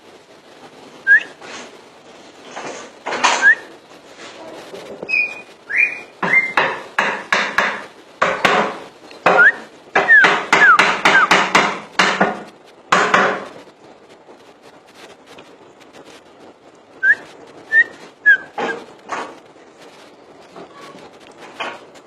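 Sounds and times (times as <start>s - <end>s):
bird harsh chattering song: 5.1s - 6.6s.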